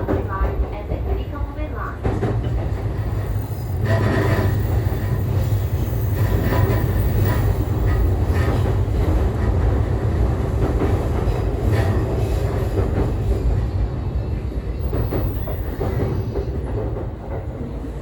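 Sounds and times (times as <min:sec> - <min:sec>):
rail joint clicks: 0:00.0 - 0:13.8, 0:14.6 - 0:18.0
train wheels rumbling on rail: 0:00.0 - 0:18.0.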